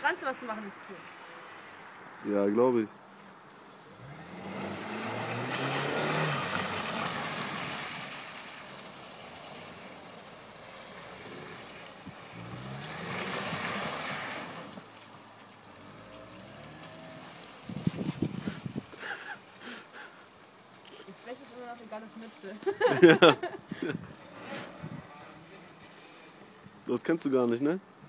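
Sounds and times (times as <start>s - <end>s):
car engine revving: 3.8s - 14.9s, 15.6s - 18.4s
tyres spinning on snow: 3.8s - 27.6s.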